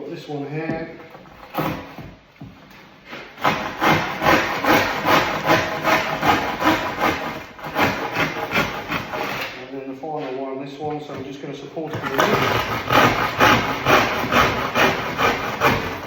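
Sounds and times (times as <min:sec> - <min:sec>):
handsaw cutting worktop: 0:01.1 - 0:09.7, 0:11.9 - 0:16.0.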